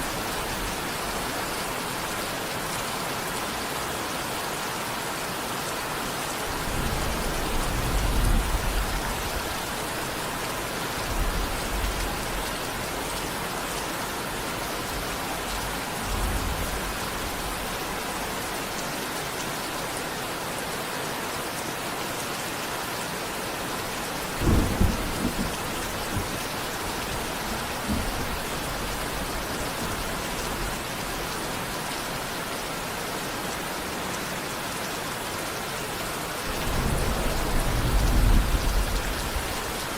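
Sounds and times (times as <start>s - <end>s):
steady rain hiss: 0.0s - 39.9s
thunder rumbling: 24.2s - 31.0s, 36.5s - 39.9s.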